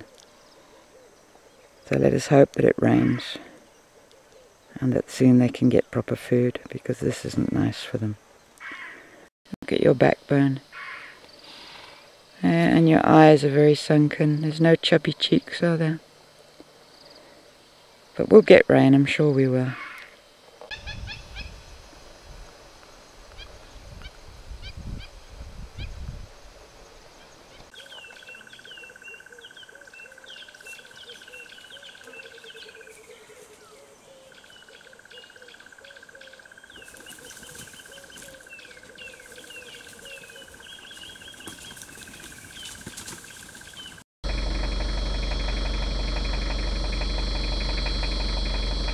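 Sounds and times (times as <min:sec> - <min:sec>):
wild birds chirping: 0:00.0 - 0:06.0, 0:07.2 - 0:09.3, 0:26.7 - 0:48.9
lower repeated bird call: 0:27.5 - 0:48.9
low rumbling: 0:44.2 - 0:48.9
steady high buzz: 0:44.2 - 0:48.9.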